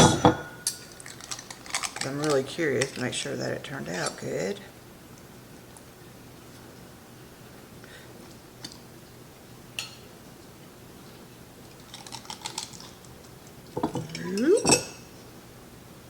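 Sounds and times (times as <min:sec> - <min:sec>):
glass jar and dish clicking: 0:13.8 - 0:15.0.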